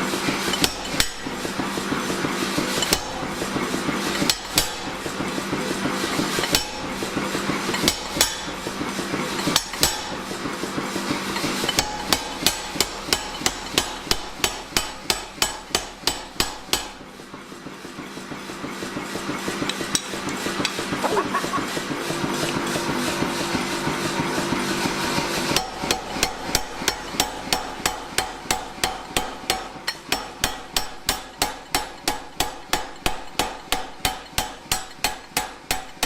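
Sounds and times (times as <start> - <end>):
hammer striking steel: 0.6 - 1.3, 4.3 - 4.9, 7.8 - 8.5, 9.5 - 10.2, 11.7 - 17.0, 25.5 - 36.0
steady hum: 20.2 - 28.8.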